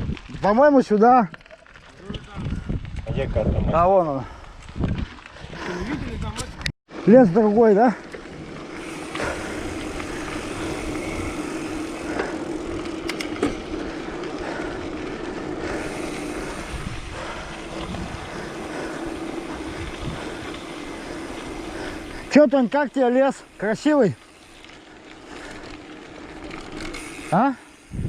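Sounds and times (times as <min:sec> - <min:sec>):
wind noise on microphone: 0:00.0 - 0:00.5, 0:01.9 - 0:06.7, 0:15.8 - 0:18.8, 0:19.4 - 0:20.9, 0:27.8 - 0:28.0
bike tyres rumbling on dirt: 0:00.0 - 0:28.0.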